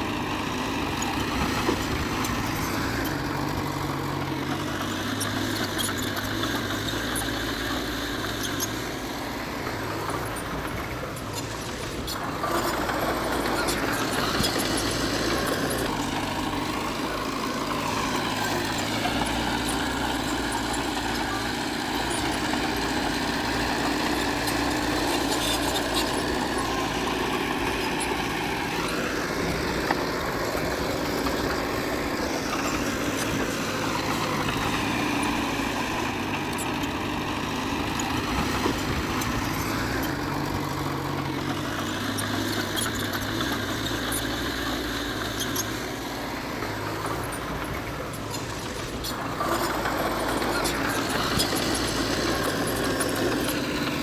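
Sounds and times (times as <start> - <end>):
heavy diesel machinery running: 0.0 - 54.0.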